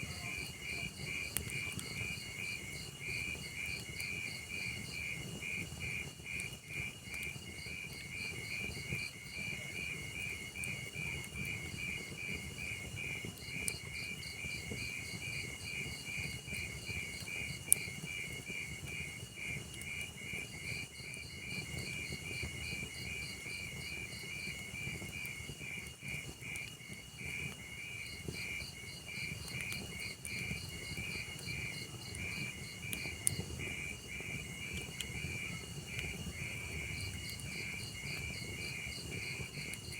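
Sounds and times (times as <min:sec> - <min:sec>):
log fire rumbling: 0:00.0 - 0:07.8, 0:08.4 - 0:39.9
fire crackling pops: 0:00.0 - 0:39.9
insect chirping: 0:27.9 - 0:39.9.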